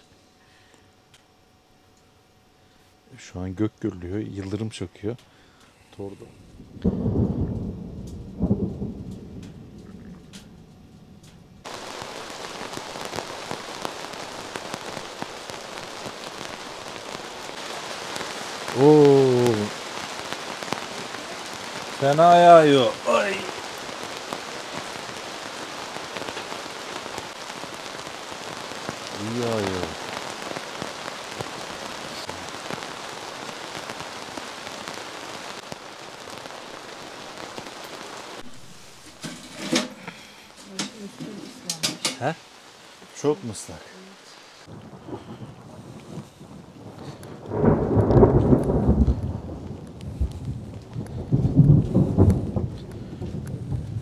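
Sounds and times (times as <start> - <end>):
heavy rain on a tent: 5.6 - 54.0
low rumble of thunder: 6.3 - 33.9, 44.7 - 54.0.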